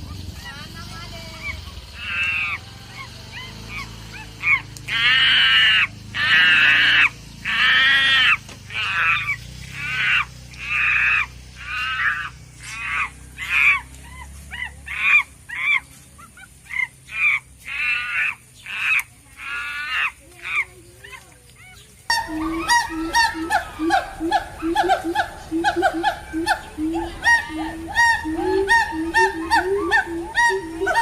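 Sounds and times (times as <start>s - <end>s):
geese honking: 2.0s - 13.8s, 22.1s - 31.0s.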